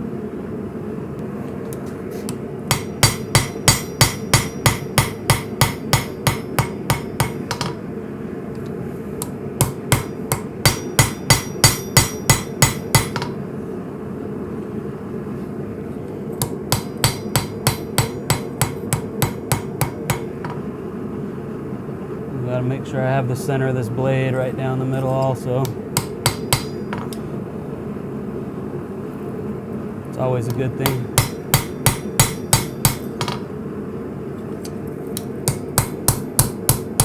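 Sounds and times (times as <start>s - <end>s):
hammer striking steel on anvil: 2.7s - 7.8s, 9.2s - 13.4s, 16.4s - 20.7s, 25.1s - 27.2s, 30.5s - 33.5s, 35.2s - 37.0s.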